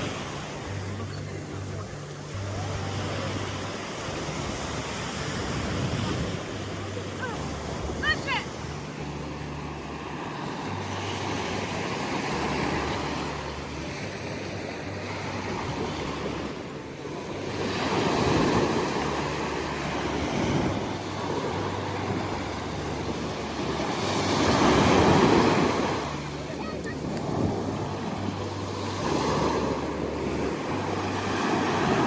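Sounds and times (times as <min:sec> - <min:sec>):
waves washing in: 0:00.0 - 0:32.0
wind on microphone: 0:03.1 - 0:08.0.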